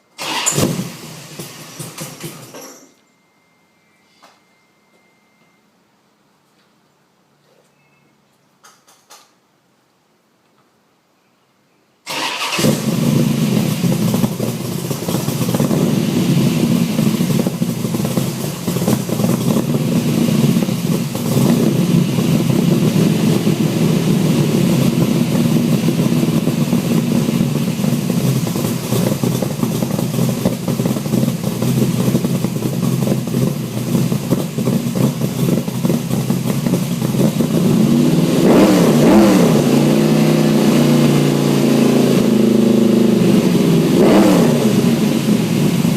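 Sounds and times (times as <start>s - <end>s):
engine revving: 12.1s - 45.9s.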